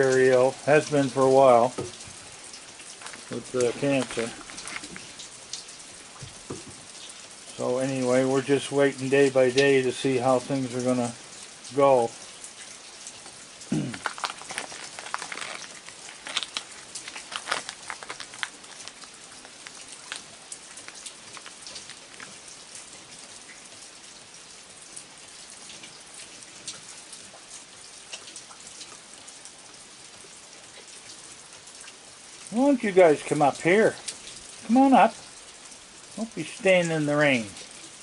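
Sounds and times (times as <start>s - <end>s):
rain falling: 0.0s - 38.0s.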